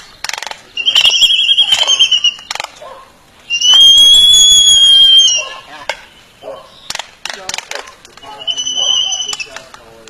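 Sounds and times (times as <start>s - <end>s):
bird long clear whistle: 0.8s - 2.5s, 3.5s - 7.0s, 8.2s - 9.7s.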